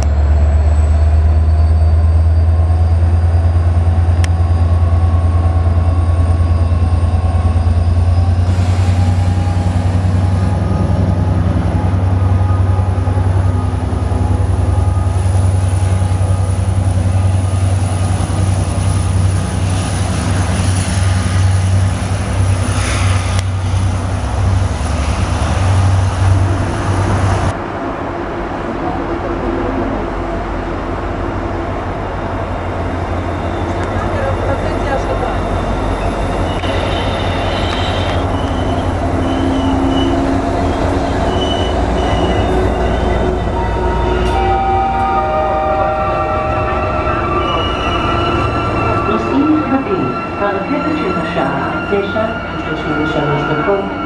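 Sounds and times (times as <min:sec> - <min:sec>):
approaching train rumble: 0:00.0 - 0:54.0
diesel locomotive engine rumble: 0:00.0 - 0:54.0
rail and wheel noise: 0:00.0 - 0:54.0.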